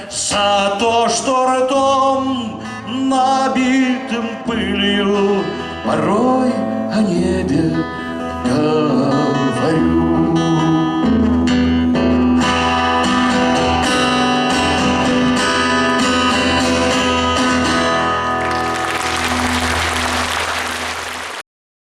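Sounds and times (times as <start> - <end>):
guitar playing: 4.1 - 21.3
audience applause: 18.4 - 21.4.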